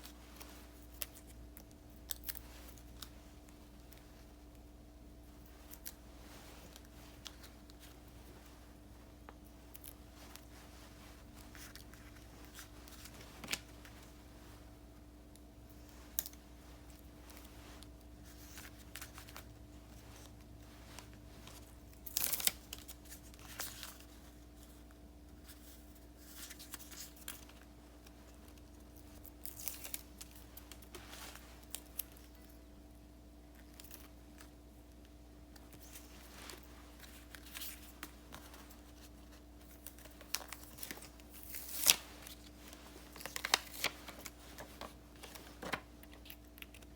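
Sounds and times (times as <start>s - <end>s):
stickers peeling crackles and rips: 21.9s - 24.0s, 39.6s - 46.9s.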